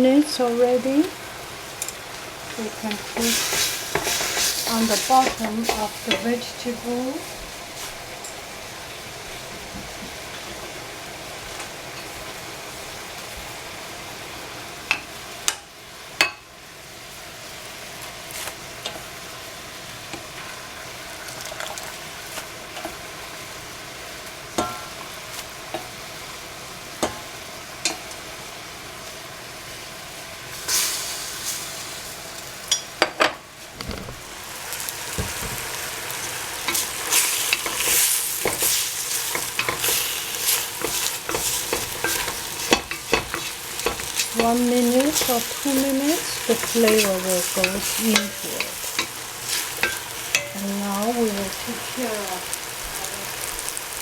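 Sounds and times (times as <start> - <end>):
vegetables sizzling in a pan: 0.0 - 54.0
utensil clicking against pan: 36.7 - 50.6.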